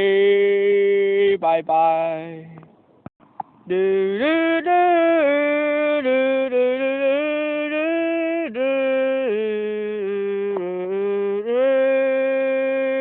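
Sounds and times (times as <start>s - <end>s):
person humming a tune: 3.7s - 13.0s.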